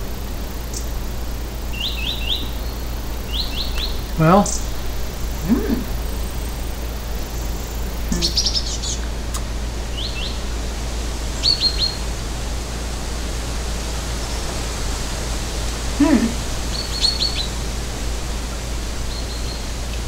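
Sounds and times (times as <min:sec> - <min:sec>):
bird chirping: 0:00.0 - 0:09.0, 0:11.4 - 0:12.0, 0:16.0 - 0:17.6
low hum and hiss: 0:00.0 - 0:20.0.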